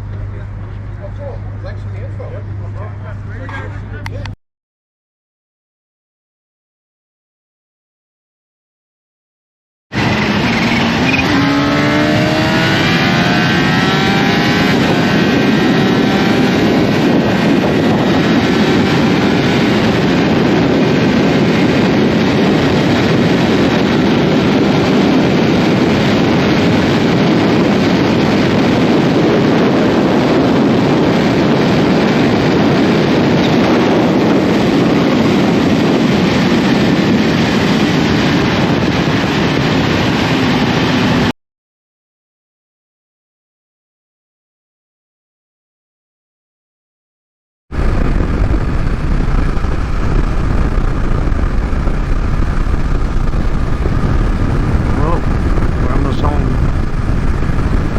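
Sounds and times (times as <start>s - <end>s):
road and wind noise: 0.0s - 4.4s, 9.9s - 41.3s, 47.7s - 57.9s
vehicle engine accelerating: 9.9s - 41.3s, 47.7s - 57.9s.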